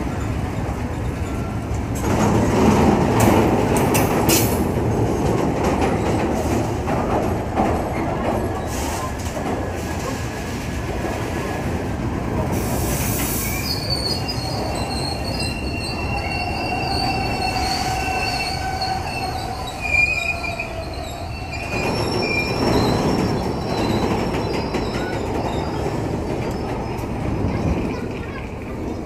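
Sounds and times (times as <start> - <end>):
train wheels squealing: 0.0 - 1.9, 12.5 - 27.2
freight train rumbling past: 0.0 - 29.0
train wheel clatter: 0.0 - 29.0.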